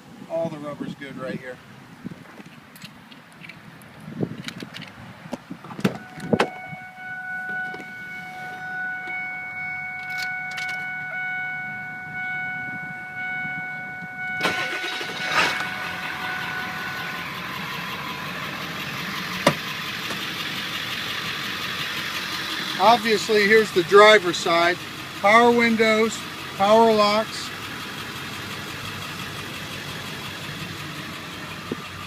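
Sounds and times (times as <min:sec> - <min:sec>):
electronic warning tone: 0:06.0 - 0:18.6
diesel engine idling: 0:06.0 - 0:32.0.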